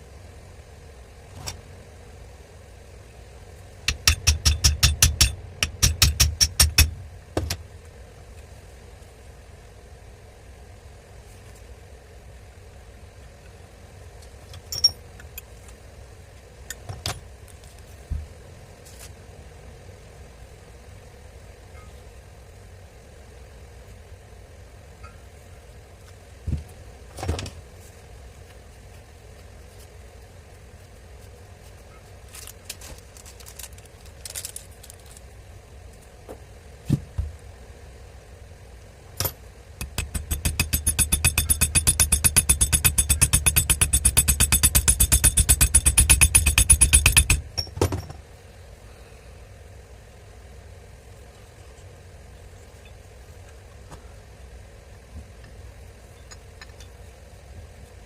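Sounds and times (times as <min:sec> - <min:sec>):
low background hum: 0:00.0 - 0:58.0
metallic tool clinks: 0:14.7 - 0:15.0.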